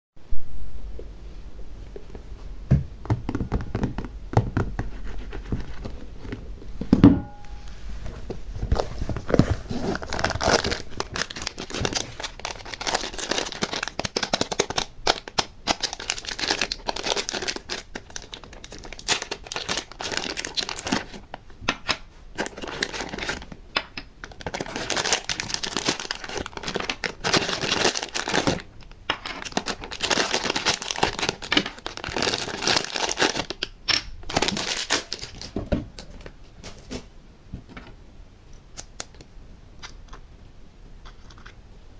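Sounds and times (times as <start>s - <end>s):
crinkly material crackling: 3.3s - 35.6s.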